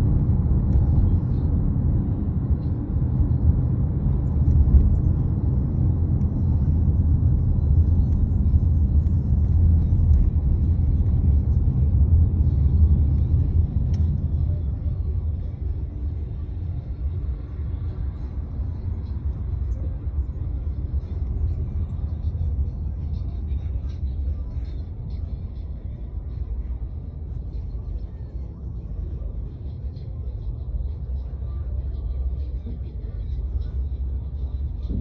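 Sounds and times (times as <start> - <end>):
truck engines rumbling: 0.0 - 35.0.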